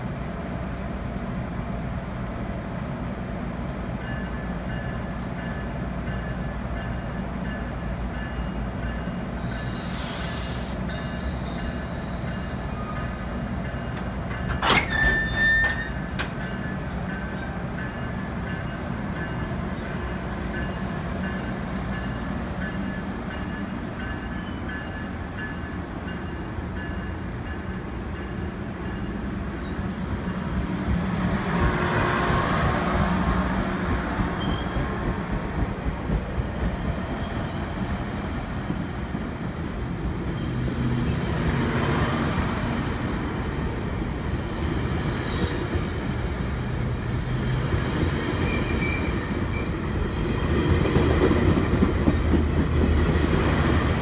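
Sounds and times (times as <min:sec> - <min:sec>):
train low rumble: 0:00.0 - 0:54.0
short hiss: 0:09.5 - 0:10.8
high wheel squeal: 0:14.6 - 0:31.3, 0:39.0 - 0:42.3, 0:42.9 - 0:50.5, 0:53.2 - 0:54.0.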